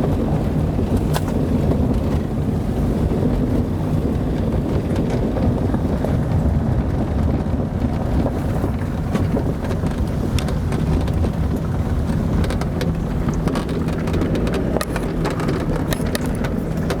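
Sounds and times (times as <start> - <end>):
car engine and tyres rumbling: 0.0 - 17.0
sharp ticks and clatters: 8.0 - 17.0.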